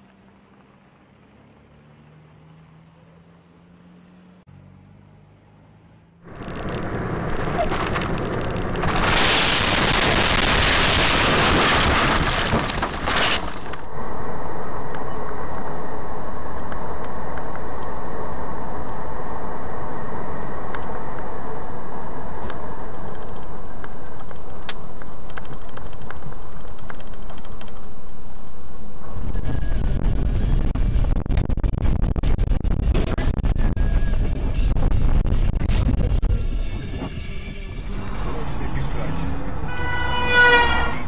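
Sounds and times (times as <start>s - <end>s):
car engine and road rumble: 0.0s - 41.0s
loud rushing noise: 37.4s - 41.0s.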